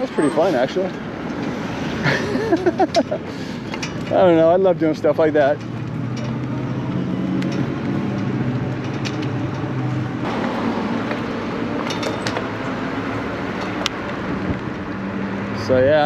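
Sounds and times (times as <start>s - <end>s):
tyres and wind rumble: 0.0s - 16.0s
metallic clinks and rattles: 0.8s - 10.0s.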